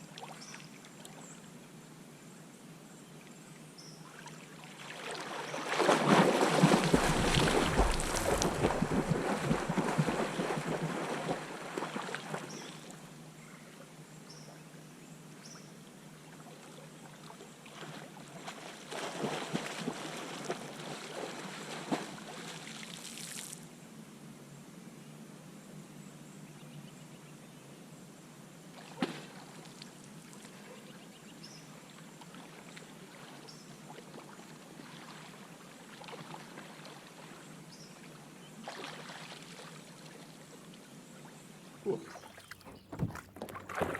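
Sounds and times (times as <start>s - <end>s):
water sloshing and trickling: 4.0s - 13.0s, 16.4s - 23.4s, 32.2s - 37.4s, 38.6s - 40.8s, 41.8s - 43.9s
water splashing: 4.8s - 12.8s, 17.8s - 23.4s, 41.8s - 43.9s.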